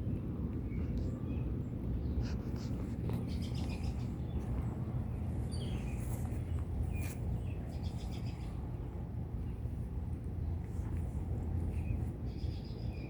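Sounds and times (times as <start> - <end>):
low rumbling outdoor ambience: 0.0 - 13.0
birds chirping: 3.0 - 9.7.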